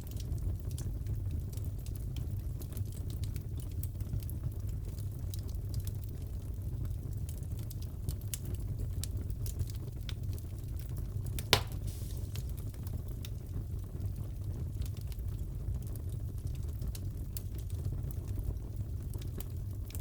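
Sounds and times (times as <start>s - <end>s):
fire pops and snaps: 0.1s - 20.0s
fireplace crackling: 6.8s - 20.0s.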